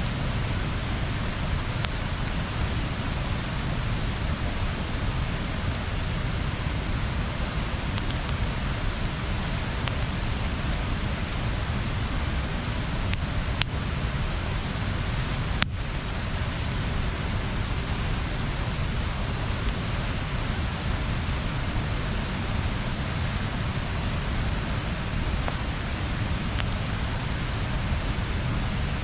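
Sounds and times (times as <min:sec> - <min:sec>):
bonfire crackling: 0:00.0 - 0:29.0
sharp pops of burning wood: 0:04.4 - 0:10.6, 0:12.4 - 0:13.8, 0:15.6 - 0:27.4.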